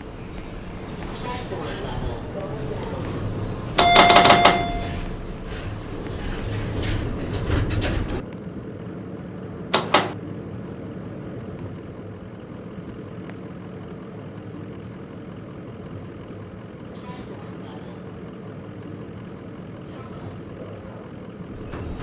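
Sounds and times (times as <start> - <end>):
lift doors rumbling shut: 0.0 - 8.2, 9.8 - 10.2, 21.5 - 22.0
low hum of lift travelling: 0.0 - 22.0.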